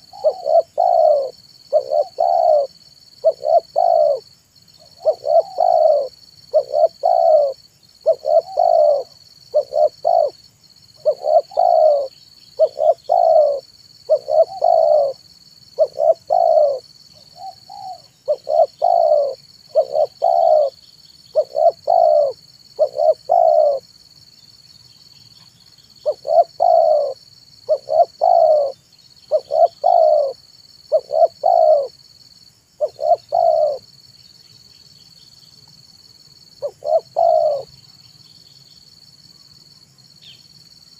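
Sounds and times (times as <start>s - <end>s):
dove cooing: 0.0s - 10.4s, 11.0s - 23.9s, 26.0s - 32.0s, 32.8s - 33.9s, 36.6s - 37.7s.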